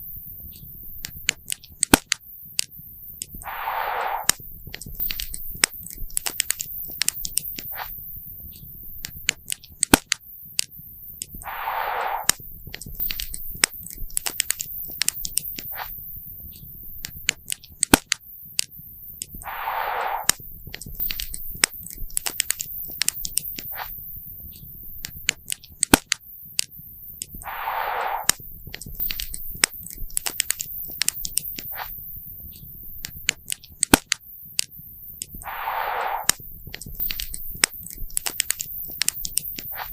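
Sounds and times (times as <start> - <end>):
short hiss: 3.4 - 4.4, 11.4 - 12.4, 19.4 - 20.4, 27.4 - 28.4, 35.4 - 38.0.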